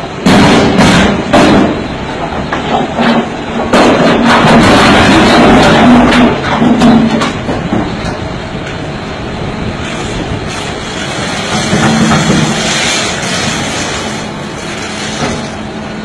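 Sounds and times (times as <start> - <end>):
heavy machine engine running: 0.0 - 16.0
rocks being crushed: 10.5 - 15.5.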